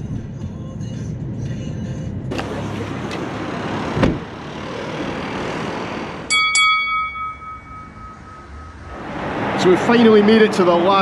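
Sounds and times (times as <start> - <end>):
vehicle noise: 0.0 - 11.0
thump: 4.0 - 4.2
bright dings: 6.3 - 8.9.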